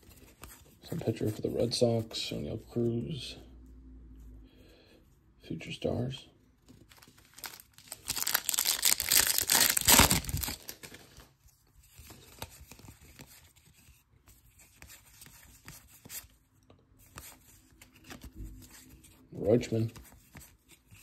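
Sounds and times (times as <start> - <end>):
cards rustling: 6.6 - 16.3, 17.0 - 21.0
foil wrapper tearing and crinkling: 6.9 - 11.2.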